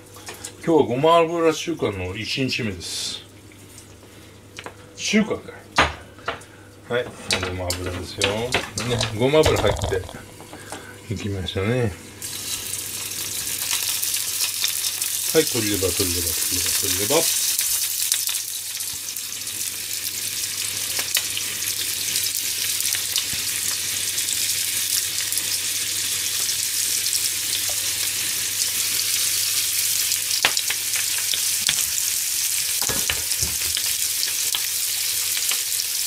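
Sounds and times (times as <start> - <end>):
oil crackles and pops: 7.8 - 10.6, 12.2 - 36.0
livers sizzling in a frying pan: 12.0 - 36.0.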